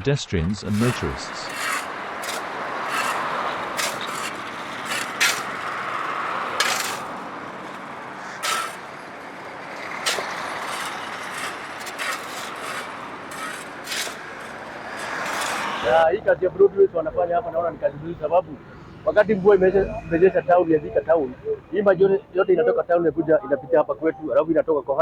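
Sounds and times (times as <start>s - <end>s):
road traffic: 0.4s - 25.0s
short scraping strokes: 0.7s - 16.0s.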